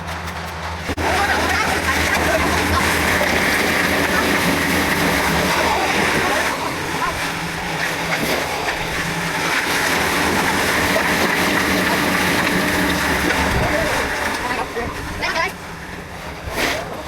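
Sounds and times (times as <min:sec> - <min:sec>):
diesel construction machinery running: 0:00.0 - 0:17.0.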